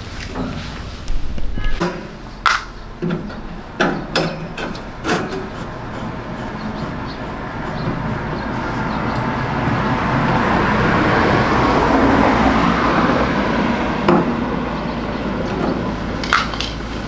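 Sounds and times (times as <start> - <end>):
steady background noise: 0.0 - 17.0
hard objects knocking and clattering: 15.4 - 17.0.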